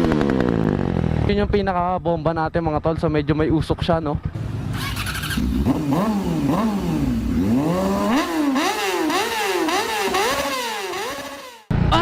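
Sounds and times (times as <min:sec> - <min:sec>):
motorcycle engine revving: 0:00.0 - 0:01.5, 0:04.2 - 0:11.7.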